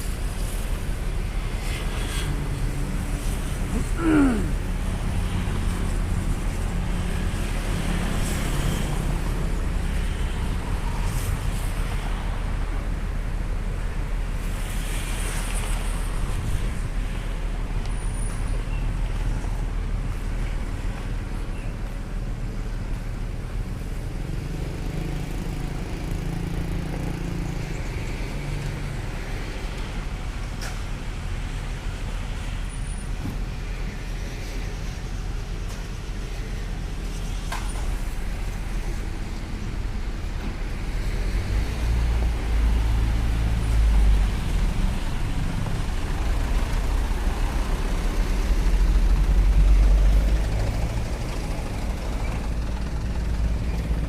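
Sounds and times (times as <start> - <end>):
traffic noise: 0.0 - 54.0
diesel truck engine running: 43.9 - 54.0.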